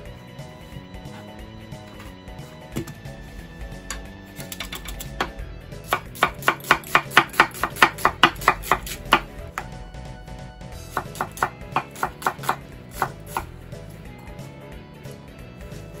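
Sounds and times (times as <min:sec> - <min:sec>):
knife chopping on wooden board: 0:03.9 - 0:09.8, 0:10.8 - 0:13.5.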